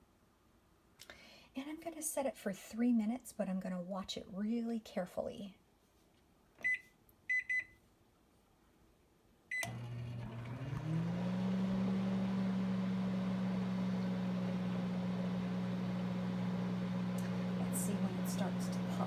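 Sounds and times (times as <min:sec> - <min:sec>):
microwave keypad beeping: 0:06.6 - 0:07.7, 0:09.5 - 0:09.8
microwave humming: 0:09.5 - 0:19.0.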